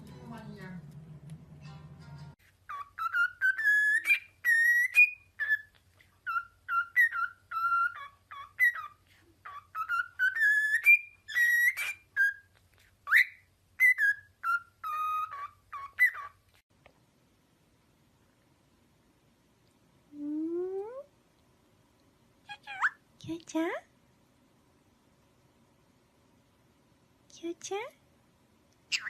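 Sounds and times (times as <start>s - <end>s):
parrot whistling a tune: 2.7s - 16.4s.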